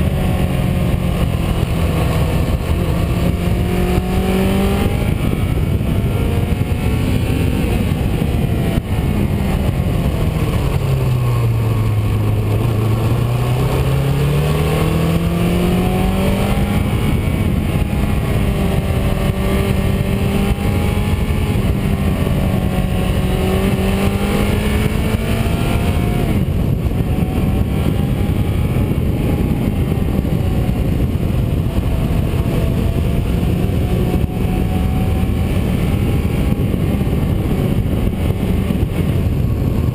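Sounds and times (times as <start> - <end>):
car engine while driving: 0.0 - 39.9
road and wind noise: 0.0 - 39.9.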